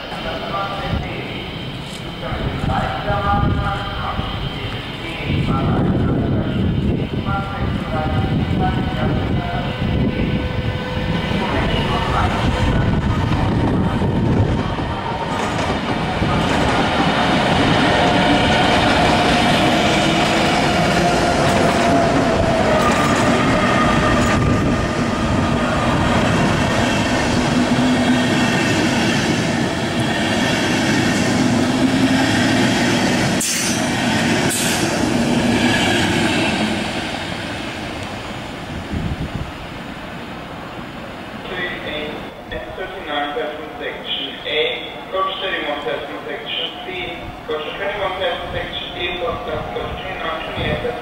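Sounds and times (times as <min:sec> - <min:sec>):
electric train pulling out: 0:08.5 - 0:38.6.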